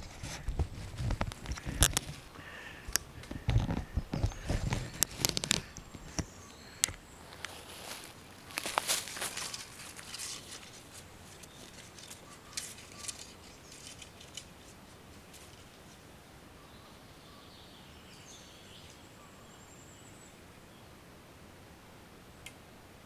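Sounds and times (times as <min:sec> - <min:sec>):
faint bird chirps: 0:01.6 - 0:08.3, 0:11.1 - 0:14.2, 0:16.5 - 0:20.9
footsteps crunching through leaves: 0:03.8 - 0:14.3.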